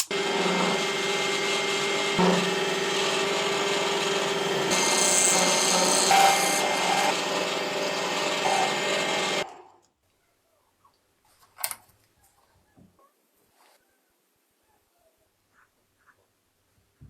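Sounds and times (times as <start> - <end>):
power tool grinding: 0.0 - 9.5.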